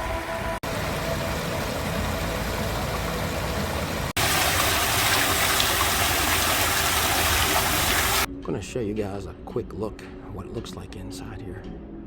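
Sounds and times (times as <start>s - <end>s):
fountain water splashing: 0.6s - 8.3s.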